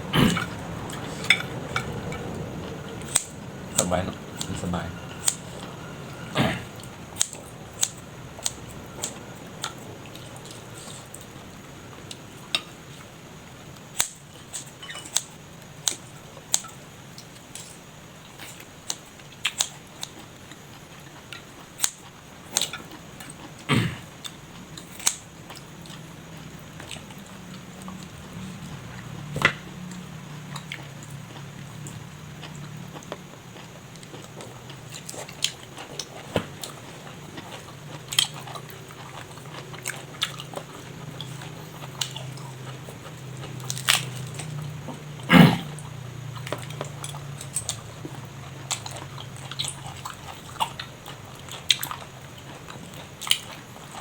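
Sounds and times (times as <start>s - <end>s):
person chewing food: 14.0s - 54.0s.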